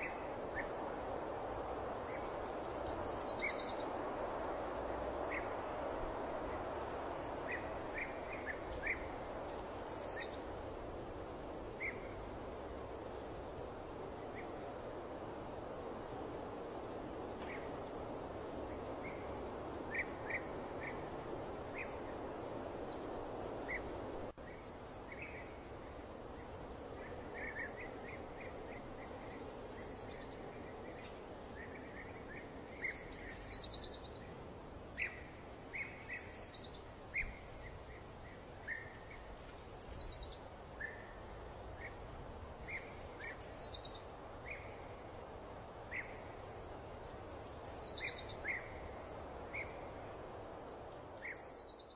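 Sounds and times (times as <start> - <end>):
birds singing: 7.5 - 10.6, 47.0 - 49.9, 50.6 - 51.9.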